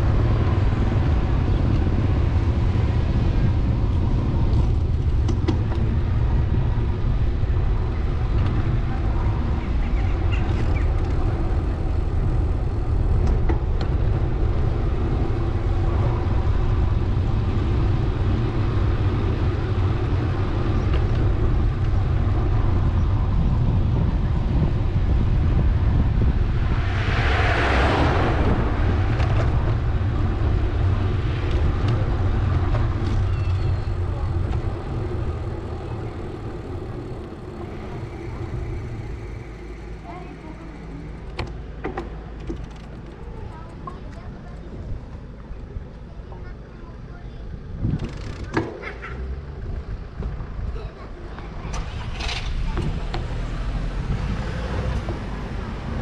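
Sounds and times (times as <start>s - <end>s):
bicycle rolling noise: 0.0s - 56.0s
street traffic: 0.0s - 56.0s
wind rumble on microphone: 0.0s - 56.0s
vehicle passing close: 24.6s - 41.7s.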